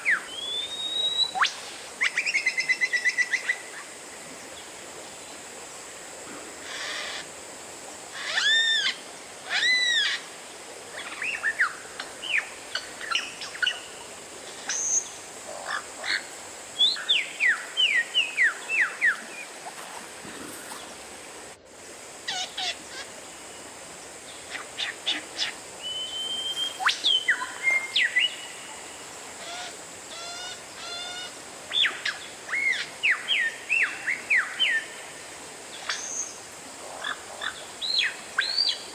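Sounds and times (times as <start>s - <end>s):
steady background hiss: 0.0s - 38.9s
bird singing whistled phrases: 0.4s - 1.5s, 25.8s - 28.4s.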